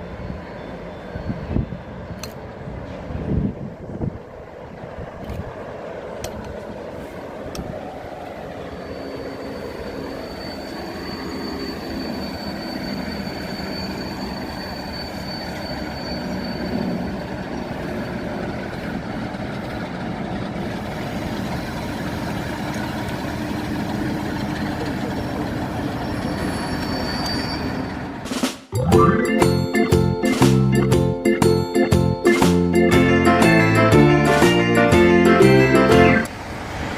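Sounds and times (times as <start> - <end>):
high squeal from wheels: 0.0 - 3.2, 7.9 - 28.2
train wheels rumbling on rail: 0.0 - 28.7
diesel locomotive engine running: 0.0 - 36.7.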